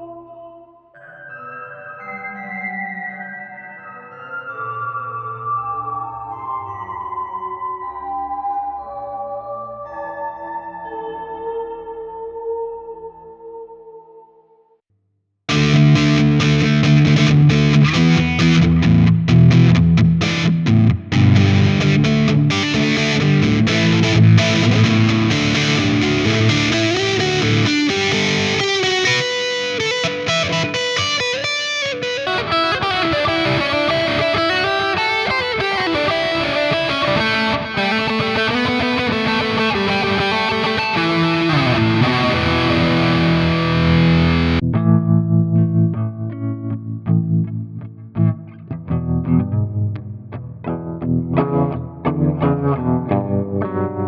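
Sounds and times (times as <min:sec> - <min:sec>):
distorted electric guitar: 0:15.5 - 0:44.6.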